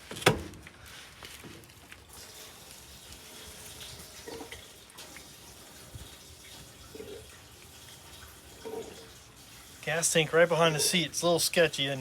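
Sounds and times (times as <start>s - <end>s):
gasoline pouring into tank: 2.0s - 11.2s
gas can glugging: 3.5s - 11.2s.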